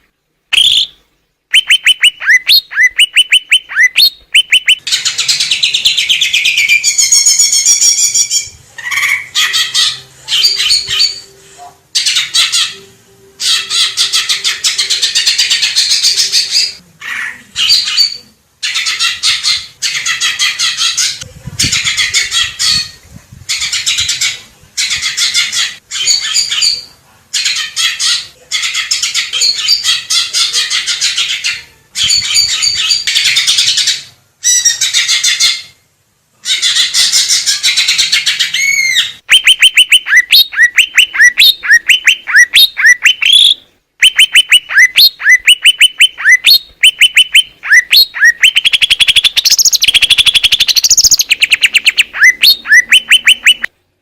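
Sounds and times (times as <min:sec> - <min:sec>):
bird singing warbles and notes: 0:00.5 - 0:11.3, 0:37.0 - 0:53.7.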